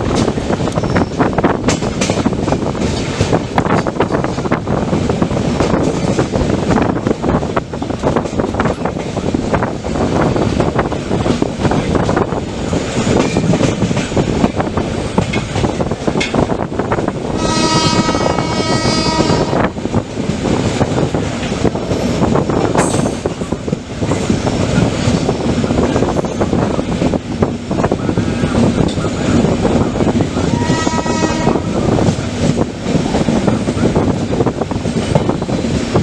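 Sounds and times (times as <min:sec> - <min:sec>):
train rumbling on rails: 0:00.0 - 0:36.0
train horn: 0:17.4 - 0:19.7, 0:30.4 - 0:31.8.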